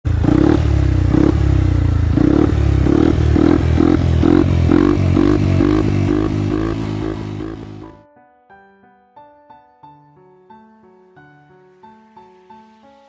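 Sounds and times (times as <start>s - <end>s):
scooter engine with loud exhaust: 0.1s - 8.0s.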